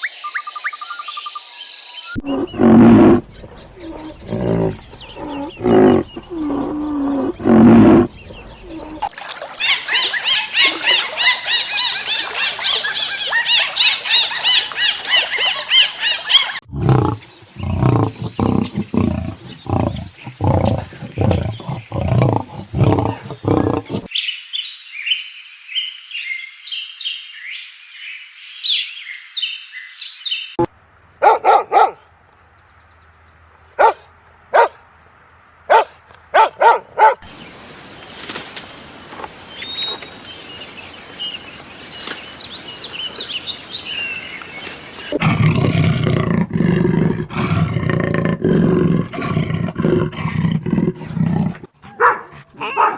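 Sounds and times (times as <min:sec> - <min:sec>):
high chirping calls: 0:00.0 - 0:16.6
loud deep roar: 0:02.2 - 0:08.8
deep grunting roars: 0:02.2 - 0:09.0, 0:16.6 - 0:24.1, 0:45.1 - 0:52.5.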